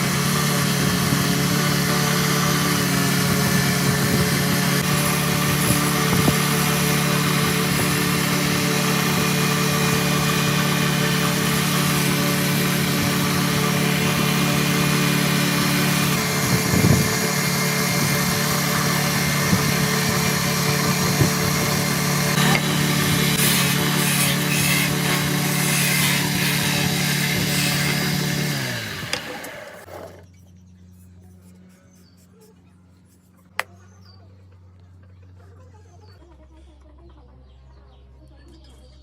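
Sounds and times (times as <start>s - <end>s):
machine motor humming: 0.0s - 30.2s.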